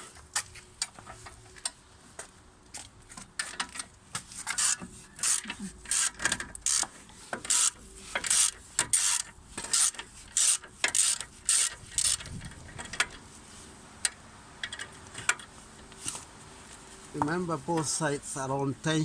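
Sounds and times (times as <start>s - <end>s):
ratchet wrench clicking: 4.5s - 6.9s, 7.5s - 12.3s.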